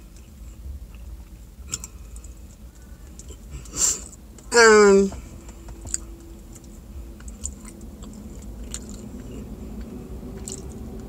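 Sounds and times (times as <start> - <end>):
person chewing: 0.0 - 4.2, 5.5 - 11.0
faint low hum: 0.0 - 11.0.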